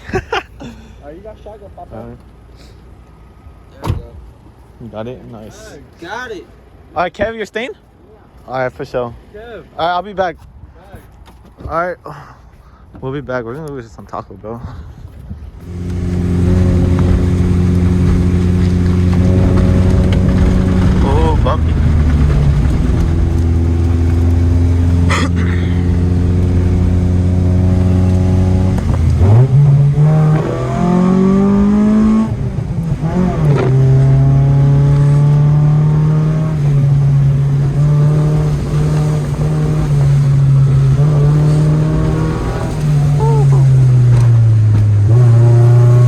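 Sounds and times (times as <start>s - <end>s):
car engine revving: 15.6s - 46.0s.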